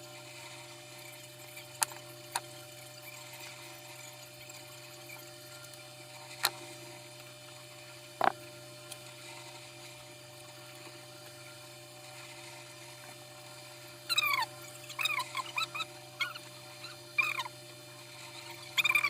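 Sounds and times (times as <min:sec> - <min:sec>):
steady electrical hum: 0:00.0 - 0:19.0
high bending animal cries: 0:14.1 - 0:17.5.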